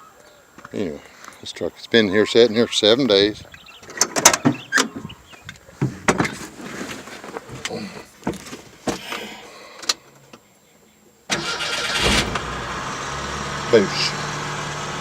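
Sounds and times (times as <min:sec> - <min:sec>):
car engine cranking and running: 0:11.3 - 0:15.0.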